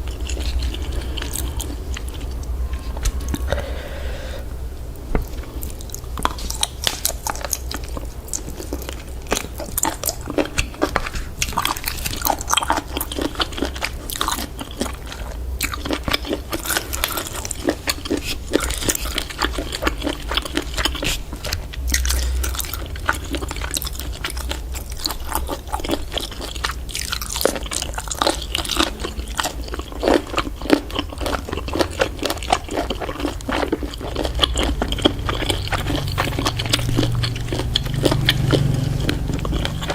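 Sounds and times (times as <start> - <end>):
person chewing: 0.0 - 39.9.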